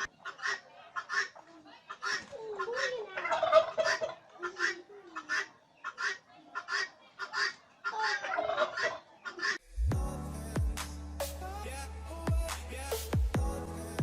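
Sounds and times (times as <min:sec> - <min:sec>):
turkeys calling: 0:00.0 - 0:09.6.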